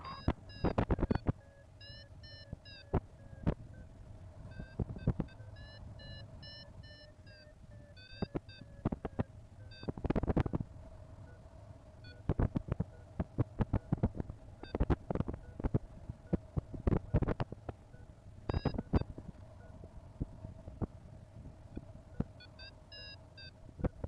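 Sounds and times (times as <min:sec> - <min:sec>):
variometer beeping: 0:00.0 - 0:24.0.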